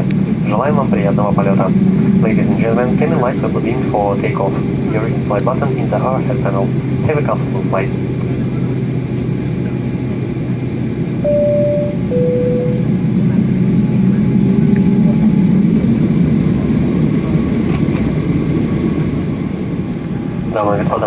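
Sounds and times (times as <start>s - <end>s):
airplane cabin engine rumble: 0.0s - 21.0s
two-tone cabin chime: 11.2s - 13.2s.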